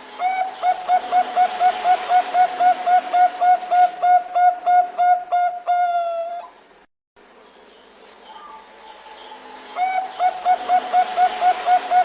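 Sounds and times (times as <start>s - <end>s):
dove cooing: 0.1s - 6.6s, 9.7s - 12.0s.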